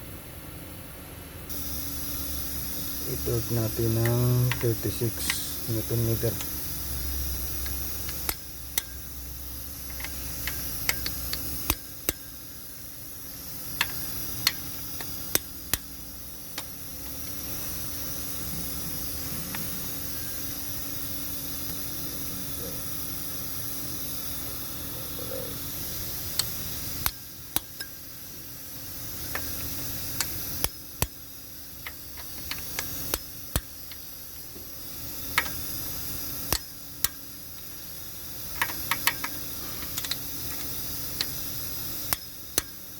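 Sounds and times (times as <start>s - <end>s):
steady hiss: 1.5s - 42.9s
torque wrench clicks: 3.1s - 12.4s, 13.7s - 17.9s, 26.3s - 28.1s, 28.8s - 34.4s, 35.2s - 42.9s.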